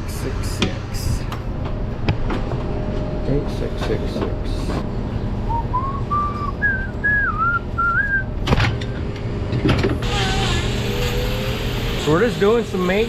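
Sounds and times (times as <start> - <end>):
low machine hum: 0.0 - 13.0
person whistling a tune: 5.5 - 8.3.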